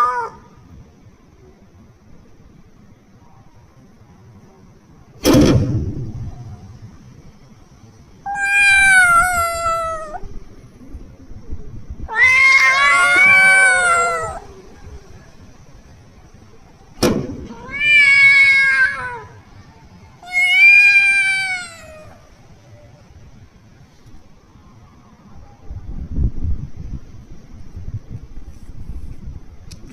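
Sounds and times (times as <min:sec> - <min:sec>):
kitten meowing: 0:08.3 - 0:10.2, 0:12.1 - 0:14.6, 0:17.5 - 0:19.4, 0:20.2 - 0:22.2.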